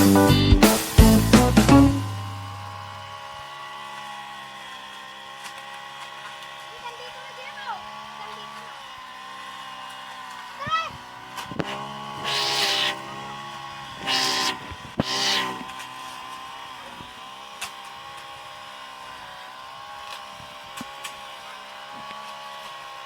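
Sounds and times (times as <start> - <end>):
motor running steadily: 0.0 - 23.0.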